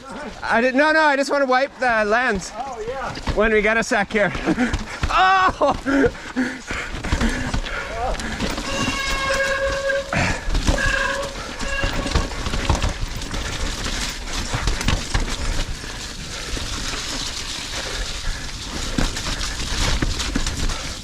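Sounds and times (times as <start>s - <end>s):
bike rattling over rough trail: 0.0s - 21.0s
bike brakes squealing: 8.4s - 13.6s.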